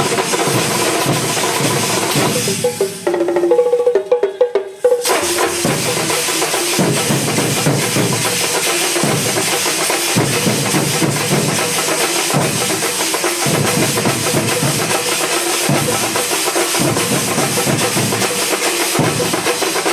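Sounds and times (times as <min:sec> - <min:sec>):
deeper drum tones: 0:00.0 - 0:09.5
drum band playing fast rhythm: 0:00.0 - 0:19.9.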